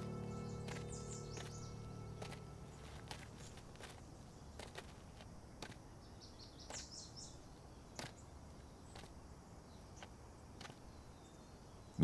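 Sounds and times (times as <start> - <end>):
high bird chirps: 0.0 - 4.7.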